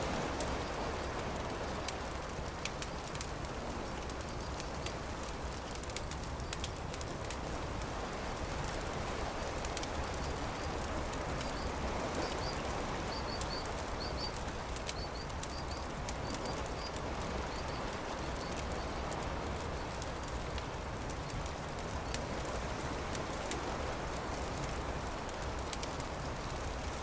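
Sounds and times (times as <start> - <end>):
campfire crackling: 0.0 - 27.0
surf washing: 0.0 - 27.0
small bird chirping: 11.4 - 19.0.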